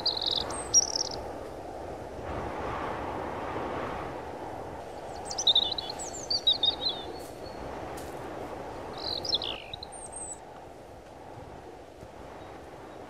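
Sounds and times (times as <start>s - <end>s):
thin bird whistle: 0.0s - 1.2s, 5.0s - 7.6s, 9.0s - 10.4s
songbirds chirping: 0.0s - 1.5s, 4.7s - 7.8s, 8.7s - 10.4s
outdoor background hiss: 0.0s - 13.0s.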